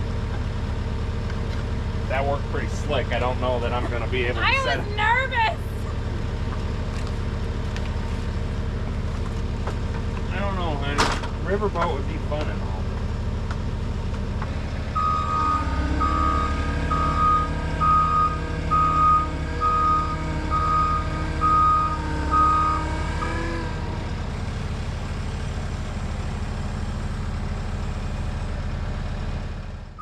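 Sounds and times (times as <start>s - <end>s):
skid steer engine running: 0.0s - 30.0s
reversing alarm beeping: 14.9s - 23.6s.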